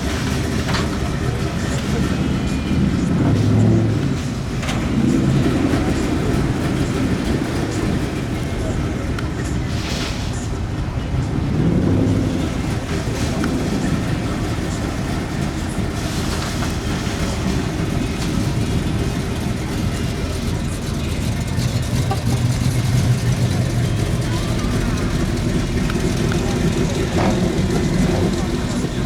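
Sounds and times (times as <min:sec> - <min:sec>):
car engines running: 0:00.0 - 0:29.0.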